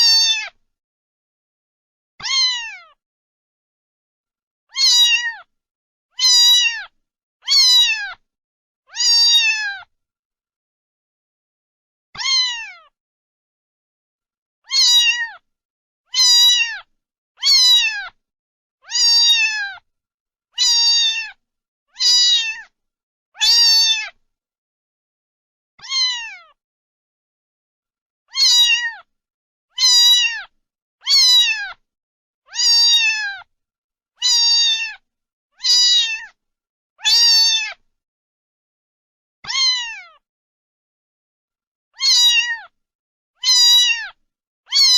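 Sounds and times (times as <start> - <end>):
cat meowing: 0.0 - 0.6, 2.2 - 3.0, 4.7 - 5.5, 6.2 - 8.2, 8.9 - 9.9, 12.2 - 13.0, 14.6 - 15.4, 16.1 - 18.2, 18.8 - 19.8, 20.6 - 21.4, 22.0 - 22.7, 23.4 - 24.2, 25.8 - 26.6, 28.3 - 29.1, 29.7 - 31.8, 32.5 - 33.5, 34.2 - 35.0, 35.6 - 36.4, 37.0 - 37.8, 39.4 - 40.2, 42.0 - 42.8, 43.4 - 44.9.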